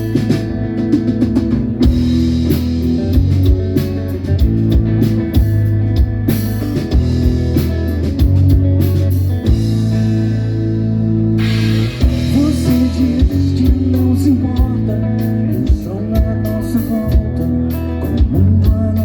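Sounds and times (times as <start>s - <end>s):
bass guitar: 0.0s - 19.0s
electric guitar chords: 0.0s - 19.0s
drum kit hits: 11.4s - 14.0s.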